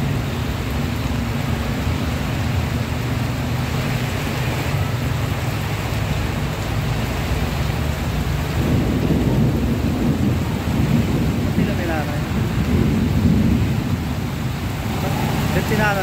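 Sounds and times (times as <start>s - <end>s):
heavy rain pouring: 0.0s - 16.0s
deep rumble: 7.6s - 16.0s.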